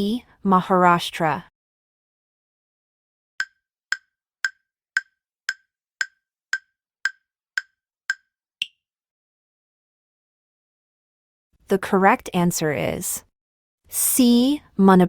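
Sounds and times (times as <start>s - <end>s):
clock-like timer ticks: 3.4s - 8.8s.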